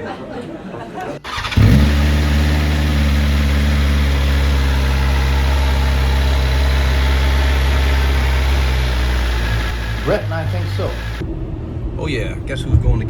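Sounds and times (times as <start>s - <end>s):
motorcycle engine idling: 1.3s - 11.2s.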